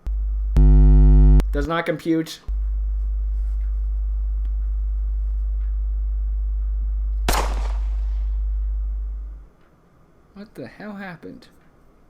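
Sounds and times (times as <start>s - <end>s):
low electronic hum: 0.0s - 1.7s, 2.5s - 9.6s
sharp bang: 7.3s - 8.4s.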